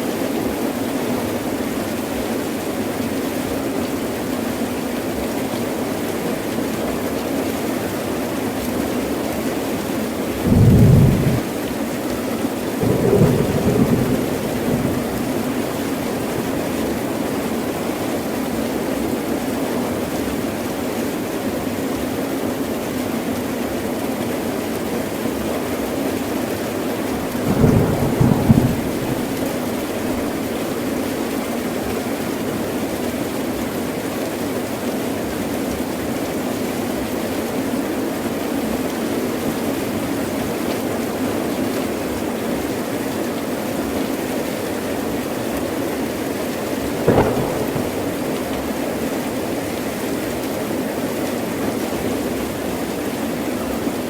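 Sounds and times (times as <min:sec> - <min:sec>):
heavy rain pouring: 0:00.0 - 0:54.0
thunder rumbling: 0:10.4 - 0:11.5, 0:12.8 - 0:16.6, 0:27.2 - 0:30.5, 0:47.0 - 0:49.0.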